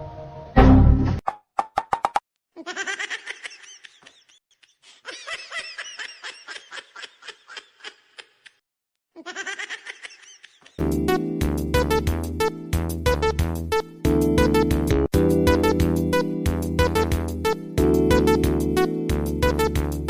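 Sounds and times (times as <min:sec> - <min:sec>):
high-pitched laughter: 0:02.6 - 0:08.6, 0:09.2 - 0:10.8.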